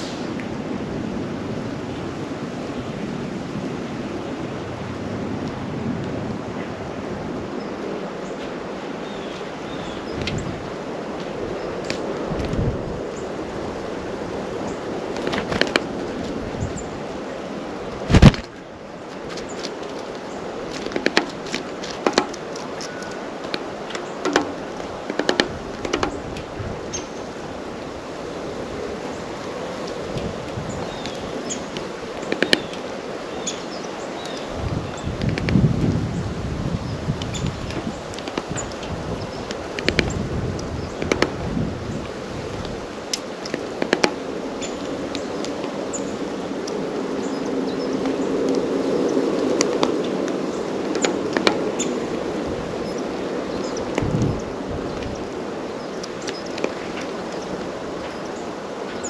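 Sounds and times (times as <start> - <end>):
background hiss: 0.0 - 0.8
bird feet landing on feeder: 18.1 - 18.5
beaks pecking at feeder: 19.2 - 27.2, 29.8 - 35.7, 37.2 - 41.4, 43.1 - 52.2, 52.8 - 59.0.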